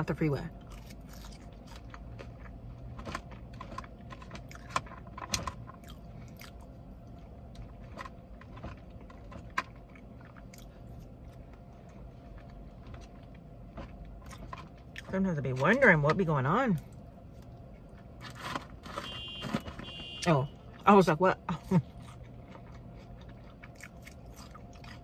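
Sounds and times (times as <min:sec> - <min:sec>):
low steady hum: 0:00.0 - 0:25.0
person chewing food: 0:00.6 - 0:15.1, 0:21.7 - 0:25.0.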